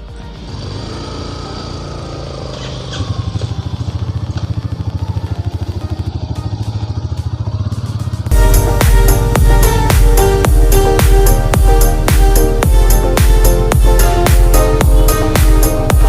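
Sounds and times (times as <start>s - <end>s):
motorcycle engine: 0.0s - 16.0s
electronic music: 8.1s - 16.0s.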